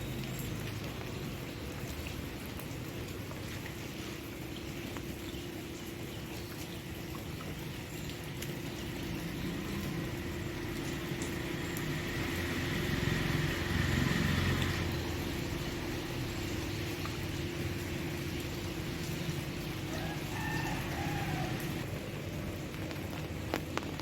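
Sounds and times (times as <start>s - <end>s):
steady rain: 0.0s - 24.0s
vehicle passing: 11.1s - 16.6s.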